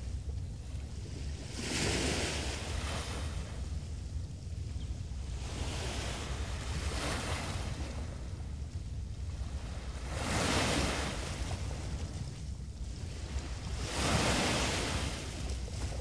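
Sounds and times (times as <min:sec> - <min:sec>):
low wind rumble on microphone: 0:00.0 - 0:16.0
small waves breaking on beach: 0:01.1 - 0:03.7, 0:05.3 - 0:08.4, 0:09.3 - 0:12.3, 0:12.9 - 0:16.0.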